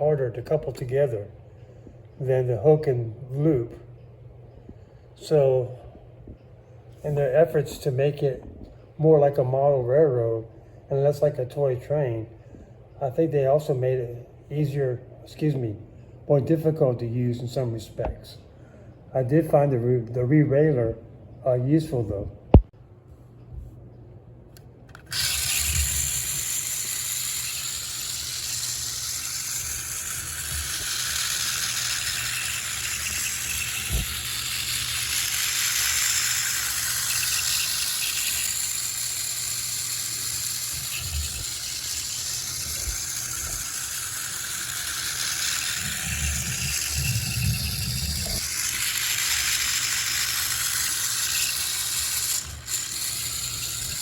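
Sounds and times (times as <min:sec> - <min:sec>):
toy train gears whirring: 0:24.9 - 0:54.0.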